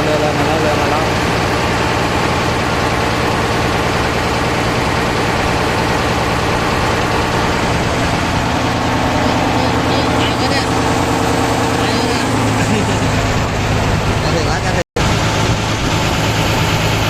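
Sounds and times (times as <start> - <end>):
engine running at low revs: 0.0 - 17.0.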